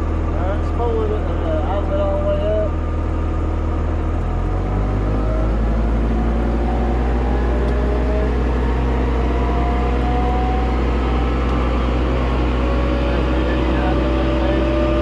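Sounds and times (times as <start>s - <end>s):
diesel engine at full throttle: 0.0s - 15.0s
hydraulic mulcher whine: 0.0s - 15.0s.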